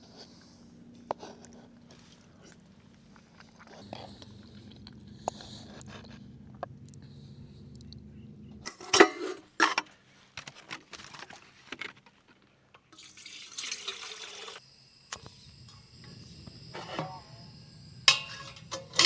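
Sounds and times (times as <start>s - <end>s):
water pouring: 13.0s - 14.6s.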